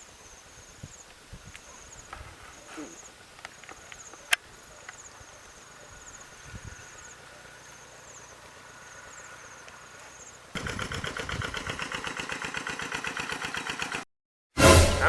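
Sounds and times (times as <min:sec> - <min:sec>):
small engine running: 0:10.6 - 0:14.1.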